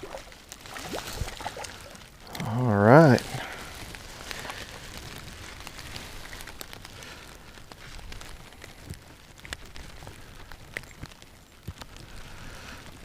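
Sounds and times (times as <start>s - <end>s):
light rain hiss: 0.0s - 13.0s
raindrops ticking on surfaces: 0.0s - 13.0s.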